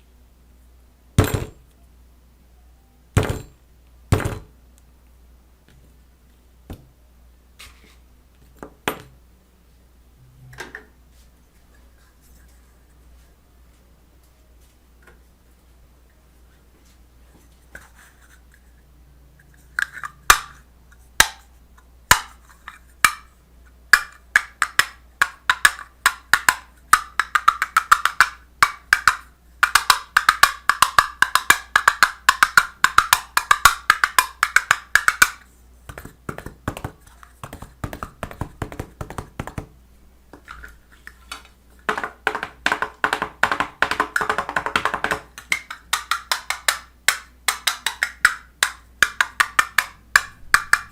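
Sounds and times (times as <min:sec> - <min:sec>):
sharp knocks and tapping: 0:24.0 - 0:39.7, 0:41.9 - 0:50.9.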